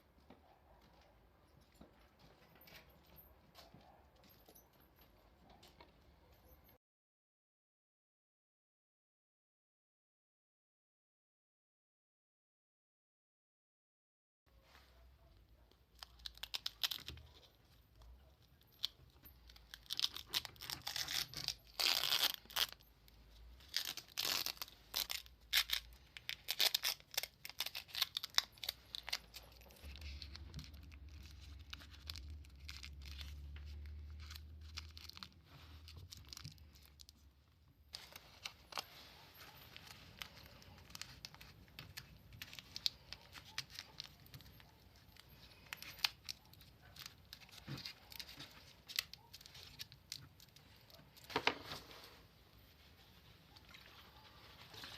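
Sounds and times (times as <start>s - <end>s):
scratching and tearing noise: 14.6s - 54.9s.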